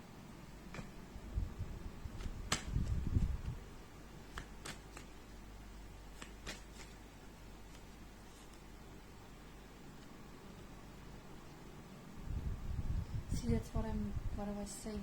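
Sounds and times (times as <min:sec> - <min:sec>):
cards clicking: 0:02.2 - 0:03.0, 0:04.2 - 0:05.3, 0:06.1 - 0:07.0.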